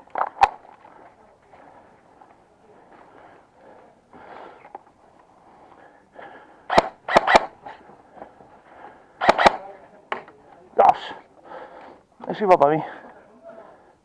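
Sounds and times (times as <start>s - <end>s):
airsoft gunfire cracks: 6.7s - 7.6s, 9.2s - 9.6s.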